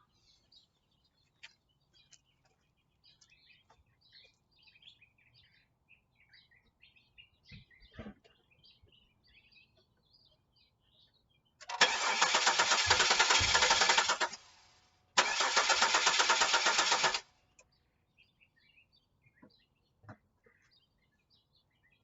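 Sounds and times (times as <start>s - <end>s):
birds chirping: 0.0s - 14.5s, 15.2s - 22.0s
starter motor cranking engine: 11.6s - 17.2s.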